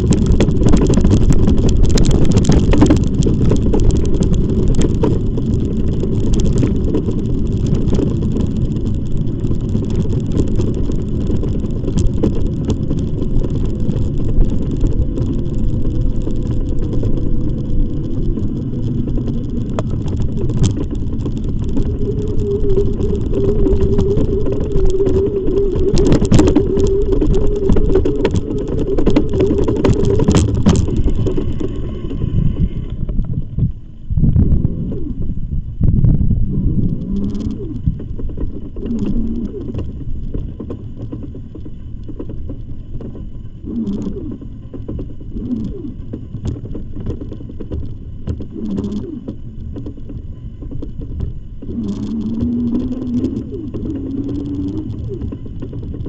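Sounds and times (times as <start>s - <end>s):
bike tyre noise: 0.0s - 56.0s
steady hum: 0.0s - 56.0s
wind rumble on microphone: 0.0s - 56.0s.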